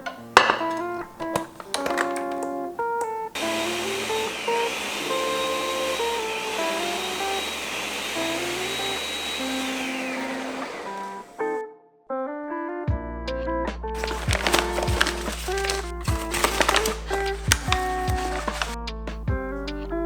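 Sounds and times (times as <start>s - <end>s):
loud whirring rush: 3.4s - 11.4s.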